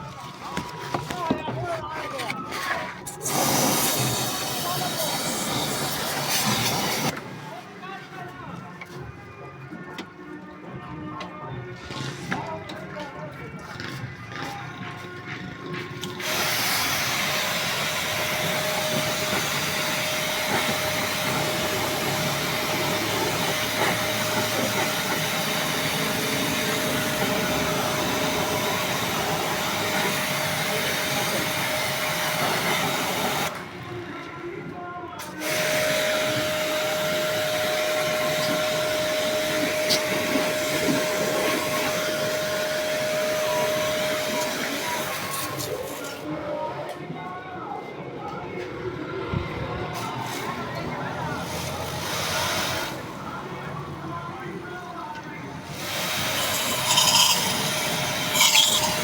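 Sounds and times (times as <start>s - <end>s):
motor-driven machine whining: 56.2s - 59.0s.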